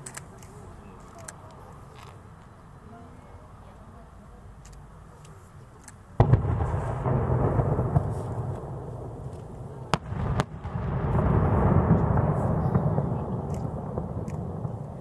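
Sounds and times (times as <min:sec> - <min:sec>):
firework shells bursting: 0:06.2 - 0:15.0
low rolling rumble: 0:06.2 - 0:15.0.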